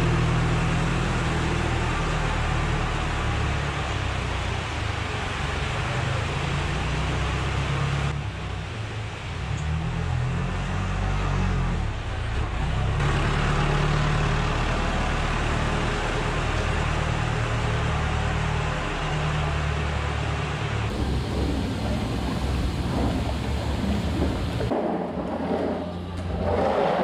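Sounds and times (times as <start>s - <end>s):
tractor engine running: 12.7s - 24.8s
steady hiss: 20.9s - 24.7s.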